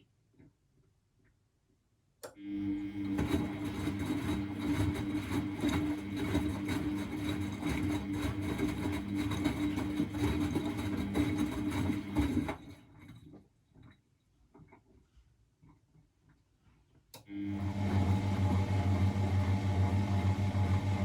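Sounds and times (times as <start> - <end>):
washing machine drum humming: 2.6 - 12.8, 17.4 - 21.0.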